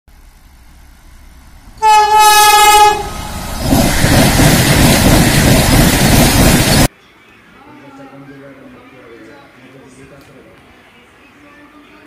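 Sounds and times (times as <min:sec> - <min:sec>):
train passing at speed: 0:00.1 - 0:06.9
train horn: 0:01.8 - 0:03.4.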